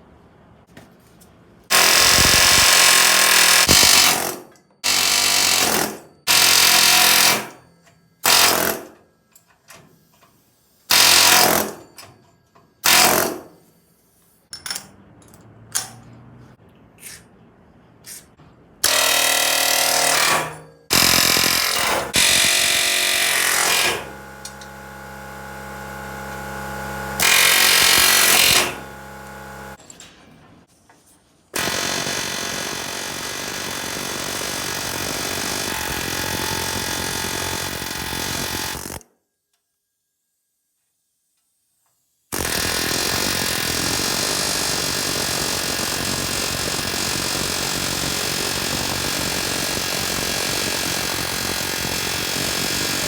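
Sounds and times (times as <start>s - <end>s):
pneumatic air hammer bursts: 1.7s - 7.6s, 10.8s - 11.9s, 18.1s - 29.8s, 42.3s - 53.0s
steady hum: 20.9s - 29.8s.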